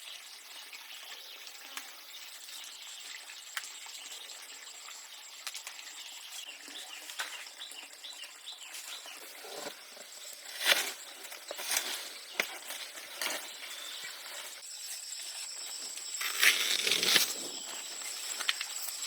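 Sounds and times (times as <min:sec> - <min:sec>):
bird chirps: 0:06.4 - 0:19.0.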